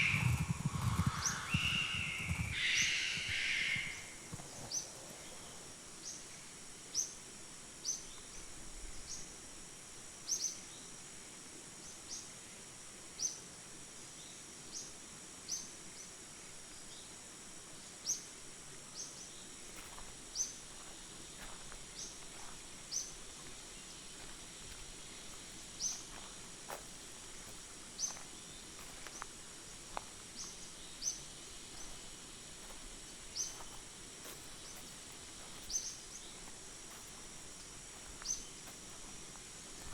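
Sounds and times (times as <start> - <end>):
sharp high chirp: 0.0 - 4.2
insects droning: 0.0 - 39.9.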